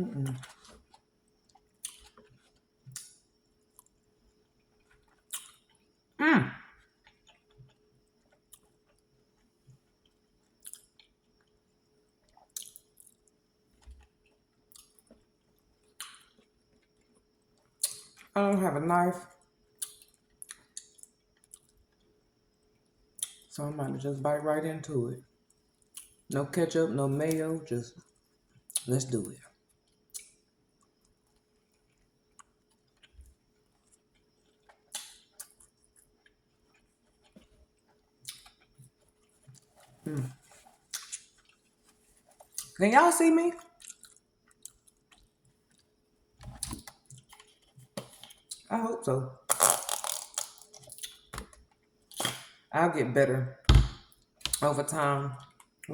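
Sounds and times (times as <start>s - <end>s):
chewing with mouth clicks: 0.2s - 5.9s, 6.8s - 11.6s, 12.2s - 18.3s, 19.8s - 22.1s, 28.0s - 42.8s, 43.6s - 48.7s, 49.5s - 52.6s.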